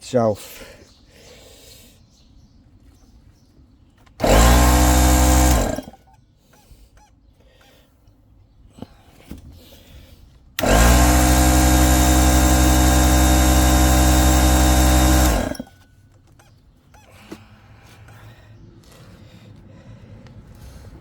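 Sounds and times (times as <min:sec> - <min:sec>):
air compressor motor running: 0:04.2 - 0:06.0, 0:10.6 - 0:15.8.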